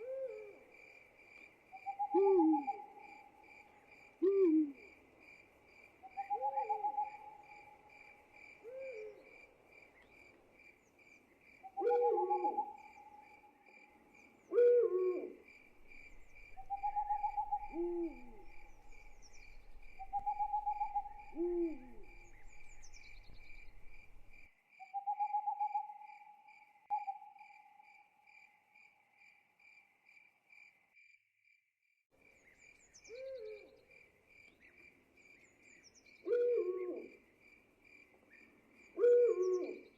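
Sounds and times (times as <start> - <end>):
crickets chirping: 0.0 - 31.2
owls hooting: 1.8 - 3.2, 11.8 - 13.0, 14.5 - 24.4.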